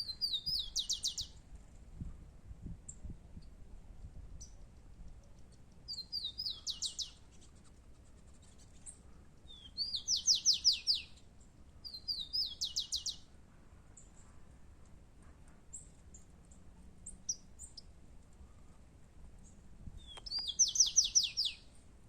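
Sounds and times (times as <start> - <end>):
sparrow singing whistles and trill: 0.0 - 1.4, 4.4 - 7.4, 8.5 - 13.2, 20.0 - 21.7.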